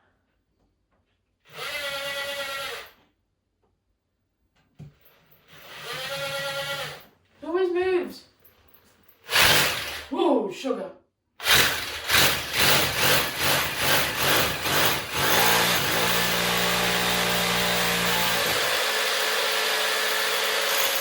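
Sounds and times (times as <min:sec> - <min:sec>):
power drill boring into wall: 0:01.4 - 0:03.0, 0:04.9 - 0:07.1, 0:09.2 - 0:10.1, 0:11.4 - 0:21.0.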